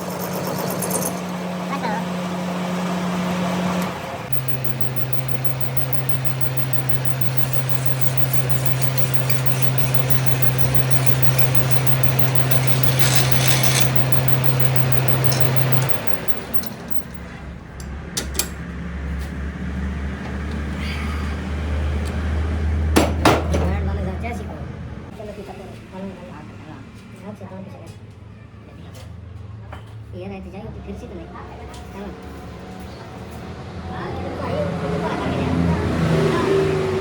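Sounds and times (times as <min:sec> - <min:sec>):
machine droning: 0:00.0 - 0:17.9
low hum: 0:04.3 - 0:17.2
sharp clicks: 0:04.3 - 0:17.2.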